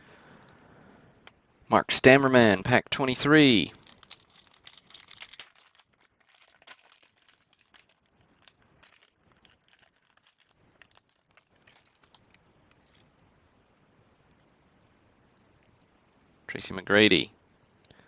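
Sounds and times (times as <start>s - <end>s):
wrapper tearing and crinkling: 3.7s - 13.0s.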